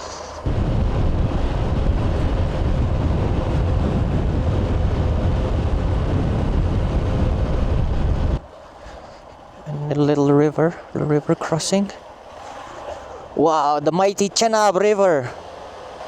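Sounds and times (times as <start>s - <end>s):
wind rush on microphone: 0.0s - 9.6s
motorcycle engine running: 0.5s - 8.4s.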